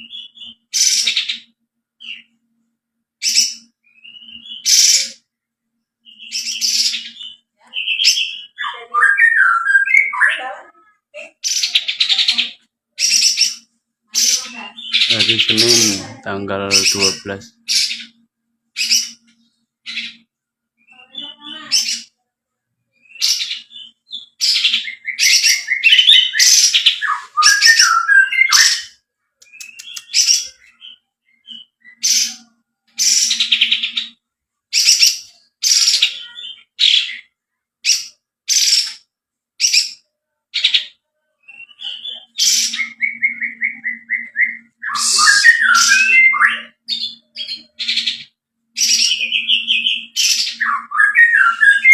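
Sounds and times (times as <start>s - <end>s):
bird singing sharp high notes: 41.5s - 51.9s.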